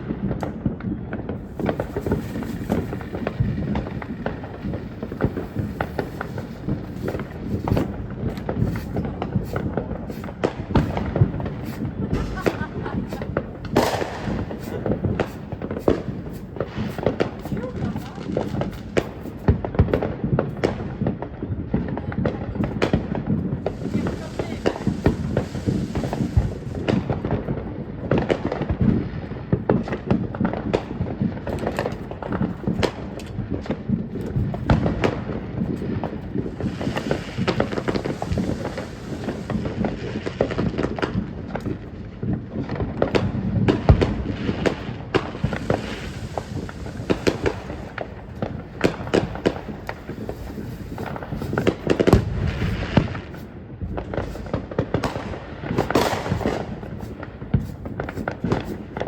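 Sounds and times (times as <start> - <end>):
fireworks cracking and popping: 0.0 - 59.0
heavy firework bangs: 0.0 - 59.0.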